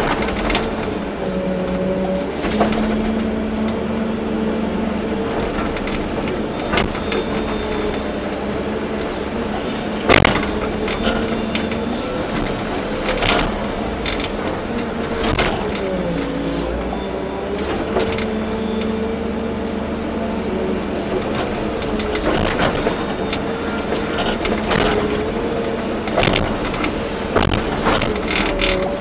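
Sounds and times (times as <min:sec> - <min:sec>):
excavator engine and hydraulics: 0:00.0 - 0:29.0
hydraulic whine: 0:00.0 - 0:29.0
knocks and clunks: 0:00.0 - 0:29.0.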